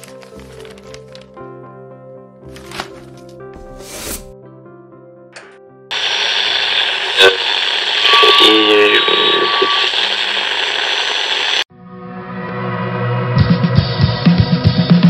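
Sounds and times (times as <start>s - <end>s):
radio dial click: 5.9s - 11.6s
radio static hiss: 5.9s - 11.7s
steady radio whistle: 5.9s - 11.7s
brief radio voice: 6.0s - 11.0s.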